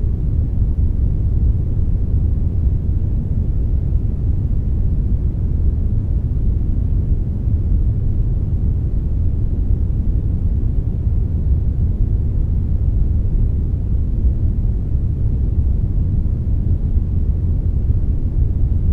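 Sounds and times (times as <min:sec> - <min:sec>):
brown noise rumble: 0:00.0 - 0:18.9.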